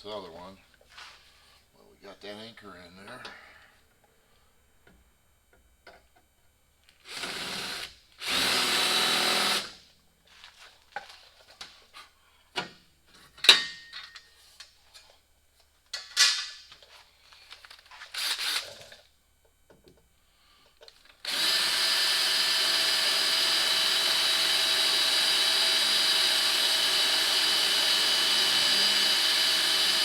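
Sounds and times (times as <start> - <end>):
power drill boring: 7.1 - 9.7, 21.2 - 30.0.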